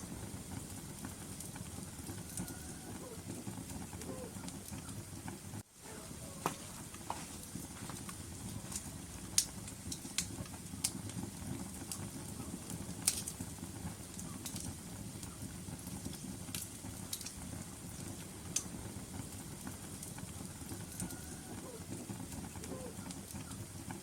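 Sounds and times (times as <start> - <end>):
logs burning with crackles: 0.0 - 24.0.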